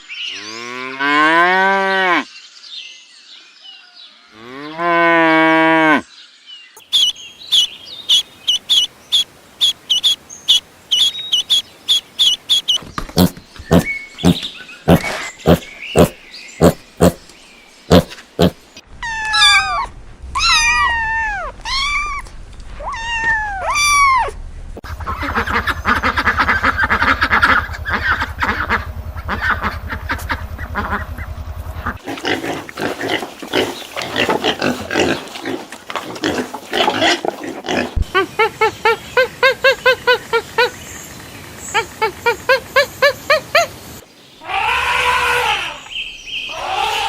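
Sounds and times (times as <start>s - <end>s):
rapid pulsing animal calls: 6.9s - 17.2s
short repeated animal calls: 6.9s - 17.2s
animal calls rising and falling: 17.9s - 24.4s, 44.4s - 45.9s, 46.5s - 47.0s.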